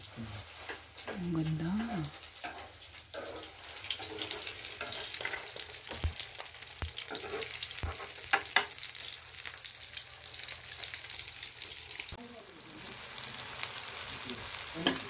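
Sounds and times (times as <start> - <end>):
fish sizzling in hot oil: 0.0 - 15.0.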